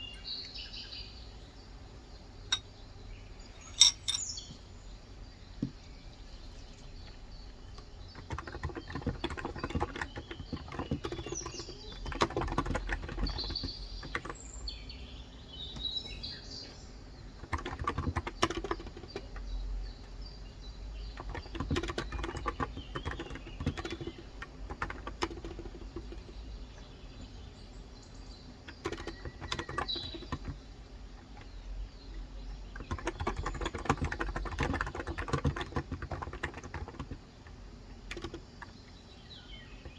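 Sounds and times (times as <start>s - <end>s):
birds chirping: 0.0s - 39.9s
keyboard typing: 7.7s - 14.5s, 17.4s - 19.4s, 21.0s - 26.4s, 28.7s - 31.6s, 32.6s - 38.8s.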